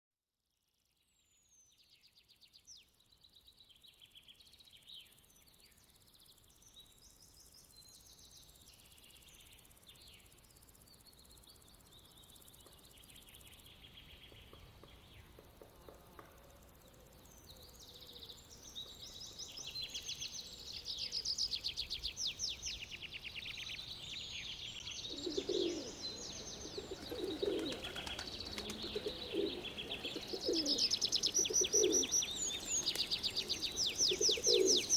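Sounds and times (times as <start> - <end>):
songbirds chirping and trilling: 1.1 - 34.9
dove cooing: 25.1 - 34.9.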